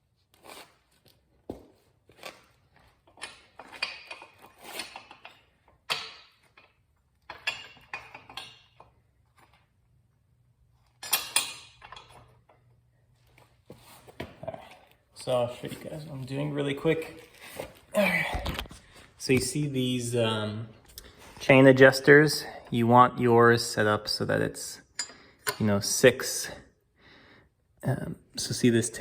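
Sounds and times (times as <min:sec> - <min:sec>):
metal tools clinking and knocking: 0:03.1 - 0:08.9, 0:11.0 - 0:12.3, 0:25.0 - 0:25.6.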